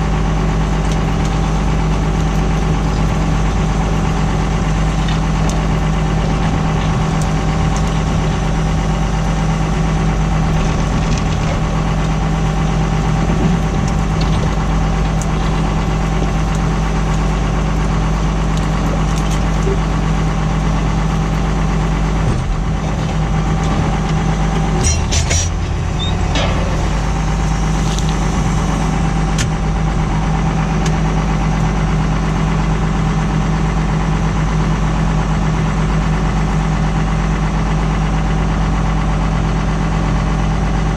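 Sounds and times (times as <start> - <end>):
tractor engine running: 0.0 - 40.9
clattering knocks: 22.4 - 28.4.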